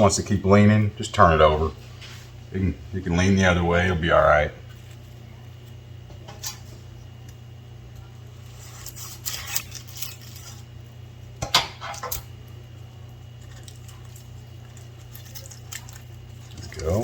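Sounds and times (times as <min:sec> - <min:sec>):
steady low hum: 0:00.0 - 0:17.0
crisp rustling: 0:08.4 - 0:10.8.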